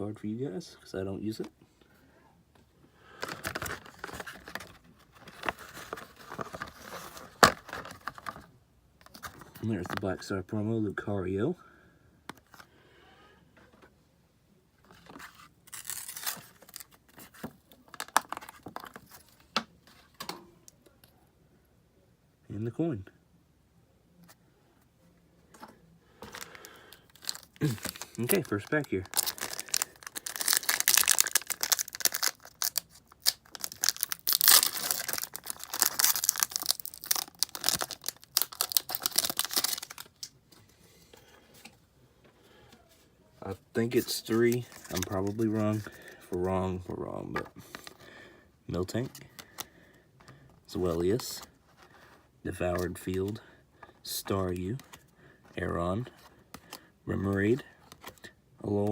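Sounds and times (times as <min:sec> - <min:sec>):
foil wrapper crinkling and tearing: 0:03.2 - 0:08.4, 0:15.2 - 0:19.2, 0:26.2 - 0:40.3, 0:43.8 - 0:46.2
plastic packaging handled: 0:03.2 - 0:10.1, 0:14.8 - 0:20.3, 0:25.5 - 0:41.8, 0:42.8 - 0:48.1.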